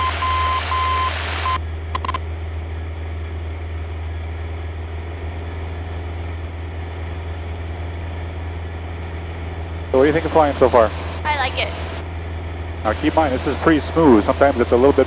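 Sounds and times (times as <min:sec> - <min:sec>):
radio click and tone: 0:00.0 - 0:02.2
small plane engine drone: 0:00.0 - 0:15.0.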